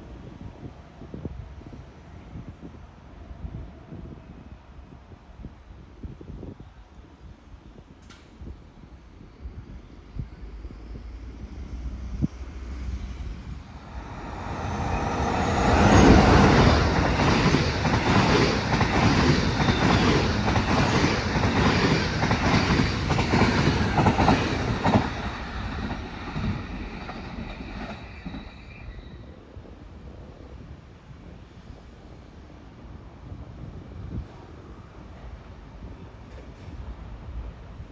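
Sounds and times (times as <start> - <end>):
train passing: 8.9 - 29.2.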